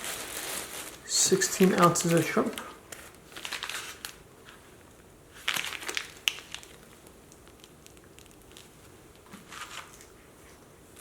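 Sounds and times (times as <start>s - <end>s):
packaging crinkling: 0.0s - 10.1s.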